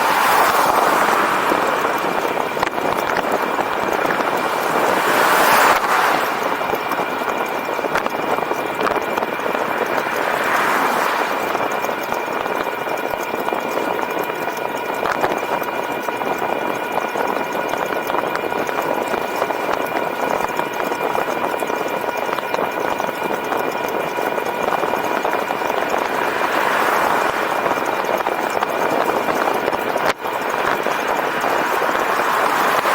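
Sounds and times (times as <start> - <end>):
wind and tyre noise: 0.0 - 32.9.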